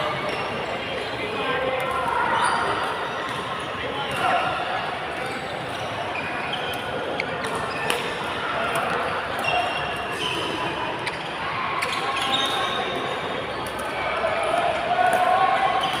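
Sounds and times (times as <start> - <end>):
voices echoing in hall: 0.0 - 16.0
shoes squeaking on court floor: 2.3 - 13.8.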